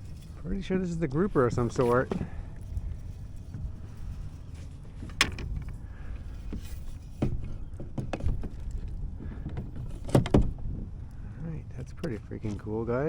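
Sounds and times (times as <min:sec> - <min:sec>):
steady low rumble: 0:00.0 - 0:13.0
knocks and clicks of fishing gear: 0:05.0 - 0:05.8, 0:06.5 - 0:10.6.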